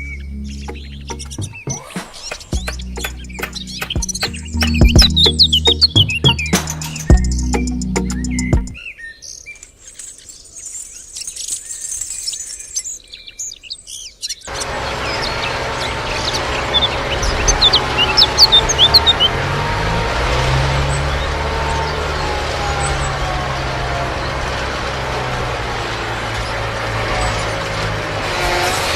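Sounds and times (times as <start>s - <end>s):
small birds chirping: 0.0s - 19.4s
mechanical running noise with hum: 14.5s - 19.4s.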